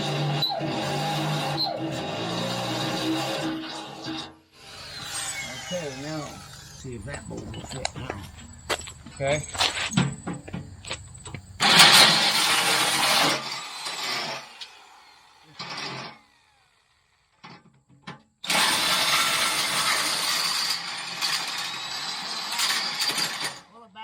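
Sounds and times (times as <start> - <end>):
electric drill drilling: 0.0 - 7.8, 11.6 - 17.0, 18.4 - 23.7.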